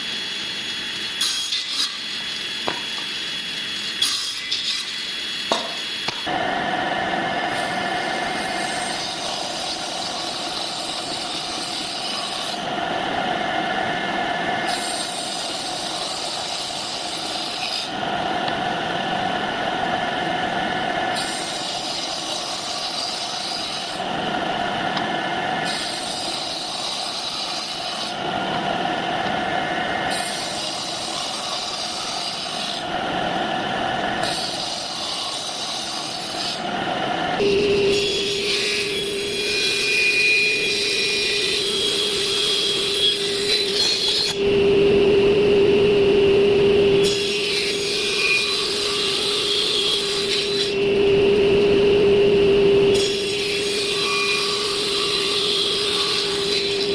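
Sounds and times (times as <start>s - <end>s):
power tool running on wood: 37.4s - 56.9s.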